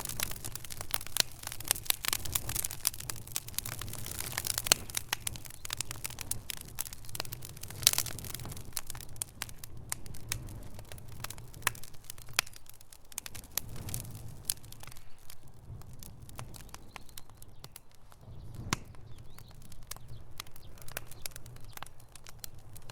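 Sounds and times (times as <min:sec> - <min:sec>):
wood fire crackling and popping: 0:00.0 - 0:22.9.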